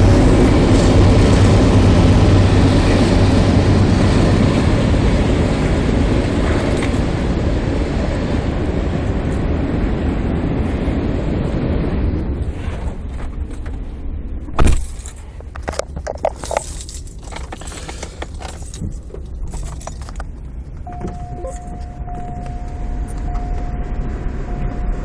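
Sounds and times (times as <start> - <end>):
low rumble: 0.0 - 25.0
keys jangling: 6.4 - 7.1, 14.6 - 22.6
clicks and jingles: 6.4 - 7.2, 14.6 - 23.5
electronic tone: 20.9 - 25.0.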